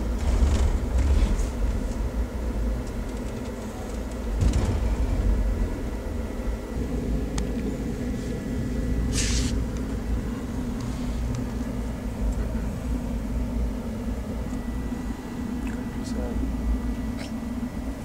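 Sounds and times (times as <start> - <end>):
train wheels rumbling: 0.0 - 14.0
brief hiss: 9.1 - 9.6.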